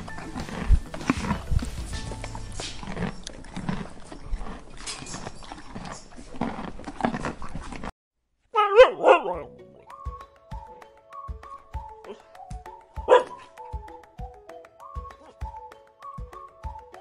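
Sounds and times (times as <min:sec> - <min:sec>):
horses chewing grass: 0:00.0 - 0:07.9
husky whining: 0:13.0 - 0:13.8.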